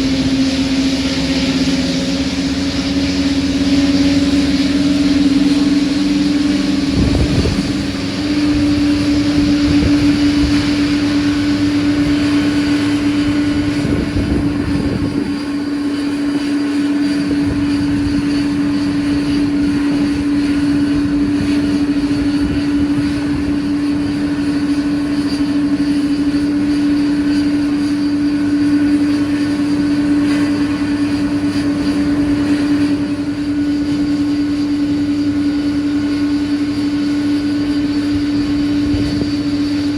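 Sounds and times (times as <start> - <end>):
airliner engines droning: 0.0 - 39.9.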